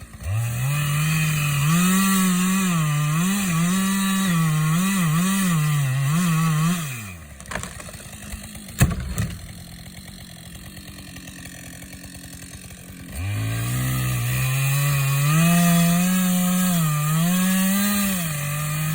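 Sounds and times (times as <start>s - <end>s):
chainsaw running: 0.0s - 18.9s
loud sharp knock: 8.8s - 9.6s.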